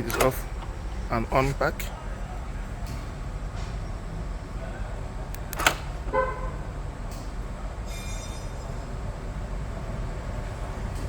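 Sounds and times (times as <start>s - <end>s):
sharp click: 5.3s - 5.9s.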